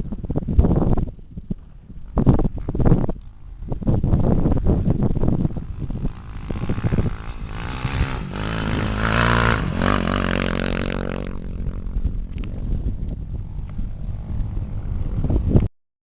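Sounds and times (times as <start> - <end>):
rough wind noise: 0.0 - 15.7
racing engine revving: 6.2 - 11.6.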